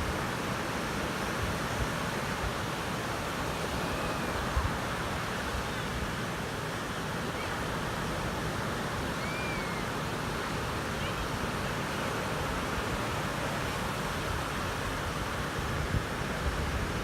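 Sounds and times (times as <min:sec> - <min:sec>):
wind rumbling on microphone: 0:00.0 - 0:10.5, 0:11.4 - 0:17.0
ocean surf on a beach: 0:00.0 - 0:17.0
faint high calls: 0:03.5 - 0:04.9, 0:09.0 - 0:10.0.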